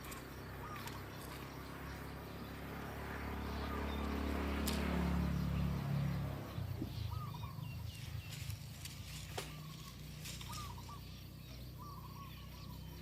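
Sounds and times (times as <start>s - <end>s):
vehicle passing by: 0.0s - 13.0s
faint bird chirps: 6.5s - 13.0s.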